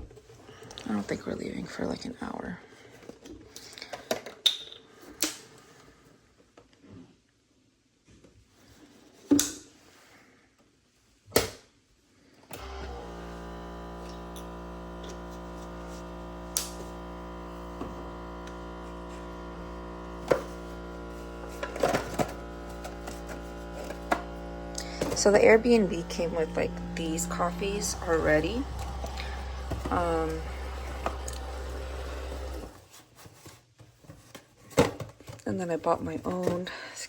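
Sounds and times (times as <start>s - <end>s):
coffee maker humming: 12.5s - 32.9s
coffee maker clicks: 21.6s - 25.5s.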